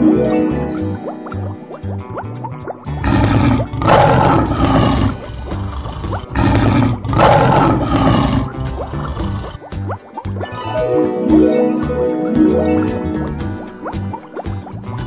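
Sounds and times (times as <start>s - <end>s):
background music: 0.0s - 15.0s
lion roaring: 3.0s - 9.6s.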